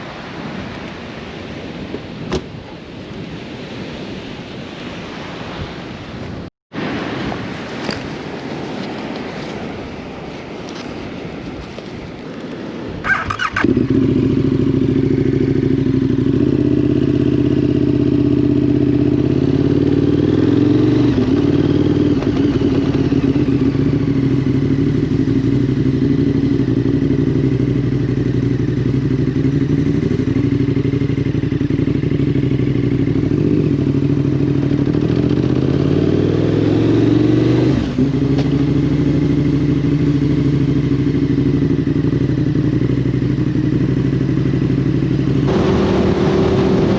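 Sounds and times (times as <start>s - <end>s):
motorcycle engine running: 7.0s - 46.9s.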